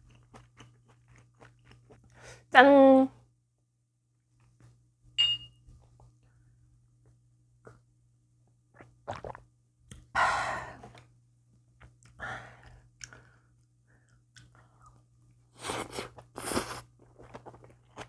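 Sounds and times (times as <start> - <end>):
person chewing noodles: 0.0 - 2.2, 8.8 - 10.0, 11.8 - 13.4, 15.6 - 18.0.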